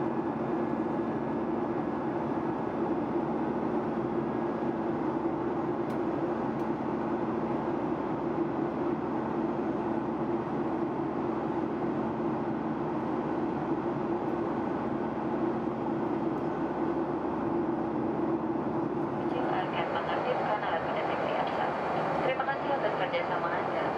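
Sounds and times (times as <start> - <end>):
airplane cabin drone: 0.0 - 23.9.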